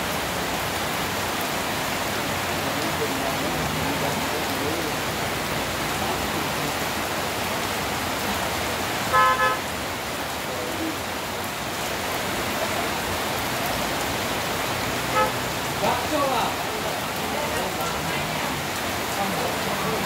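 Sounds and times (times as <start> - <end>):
rain hissing: 0.0 - 20.0
road noise: 0.0 - 20.0
vehicle horn beeping: 9.1 - 9.7, 15.1 - 15.4.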